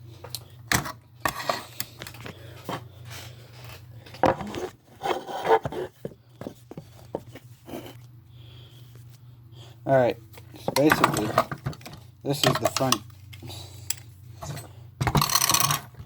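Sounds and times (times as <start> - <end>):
low steady hum: 0.0 - 16.0
parts rubbing and clattering: 10.4 - 16.0.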